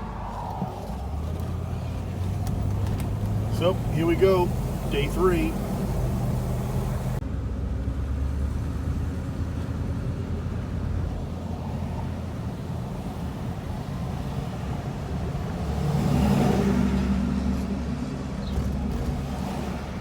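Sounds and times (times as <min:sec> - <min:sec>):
road noise: 0:00.0 - 0:20.0
car engine running: 0:00.6 - 0:08.3.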